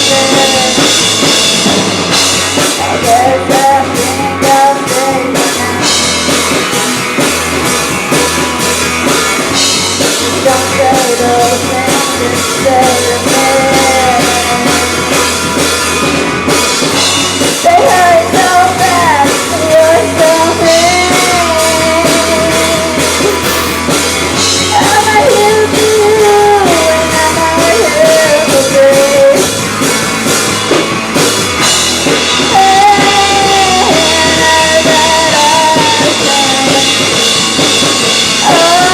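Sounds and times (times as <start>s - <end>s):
person singing: 0.0s - 1.1s, 2.7s - 6.2s, 10.2s - 15.0s, 17.7s - 23.8s, 32.5s - 37.0s, 38.4s - 38.9s
live rock band playing: 0.0s - 38.9s.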